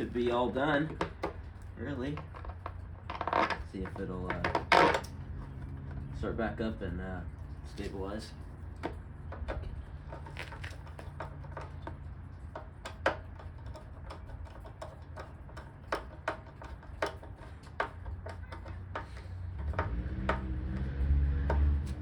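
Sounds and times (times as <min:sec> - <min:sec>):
parts clicking and tapping: 0:08.6 - 0:22.0.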